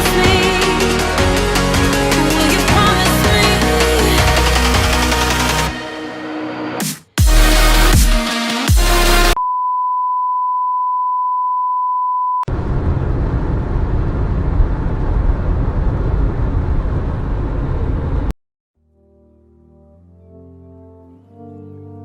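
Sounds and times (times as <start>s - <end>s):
electronic music: 0.0s - 9.4s.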